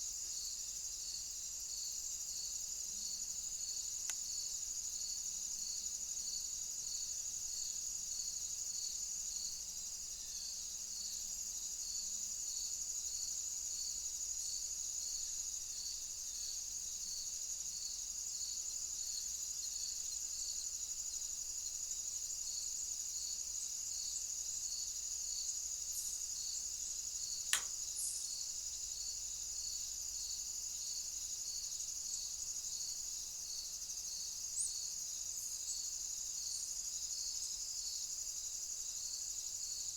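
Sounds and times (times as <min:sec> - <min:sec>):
insect chorus with pulsing chirps: 0:00.0 - 0:39.9
sharp click: 0:27.5 - 0:27.8.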